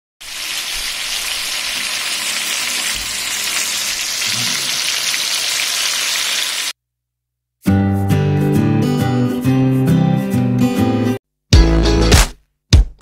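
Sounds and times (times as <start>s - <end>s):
chicken sizzling in oil: 0.2s - 6.8s.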